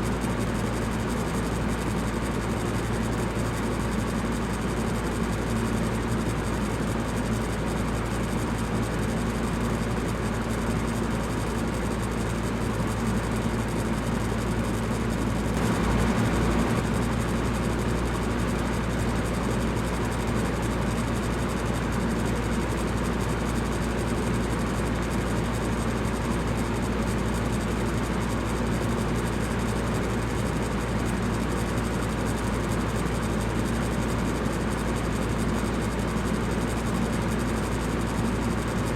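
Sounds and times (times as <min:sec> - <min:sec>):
electric fan running: 0:11.0 - 0:21.2.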